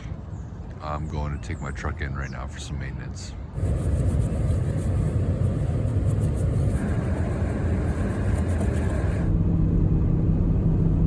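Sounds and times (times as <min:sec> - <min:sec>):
truck engine and road rumble: 0:00.0 - 0:11.0
hiss: 0:03.6 - 0:09.3.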